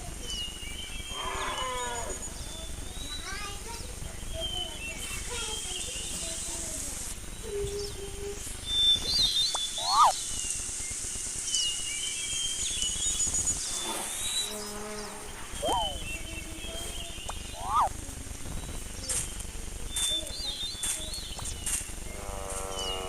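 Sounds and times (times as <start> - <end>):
insect chorus: 0.0 - 23.0
short chirps and whistles: 8.8 - 10.3, 15.6 - 16.1, 17.4 - 17.9.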